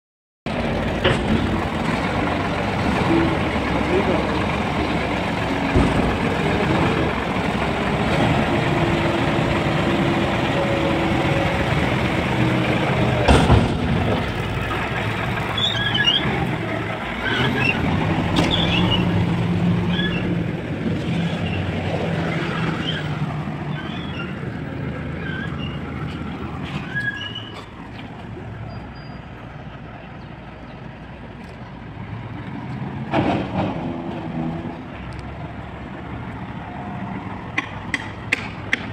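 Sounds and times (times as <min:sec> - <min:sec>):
garbage truck engine and hydraulics: 0:00.5 - 0:38.9
loud bang: 0:13.2 - 0:14.3.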